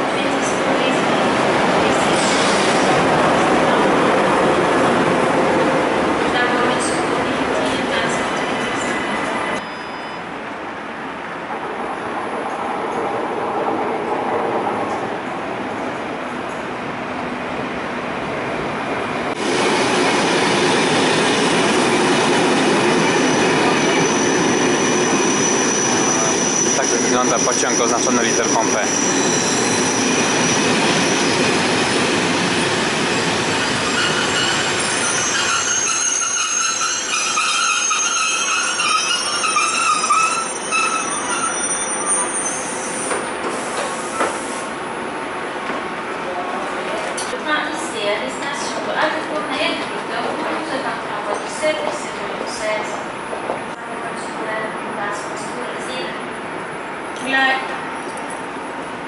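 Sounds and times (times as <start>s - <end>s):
passenger train rumbling past: 0.0s - 59.0s
high wheel squeal: 8.4s - 10.3s, 22.9s - 31.5s, 33.0s - 44.5s.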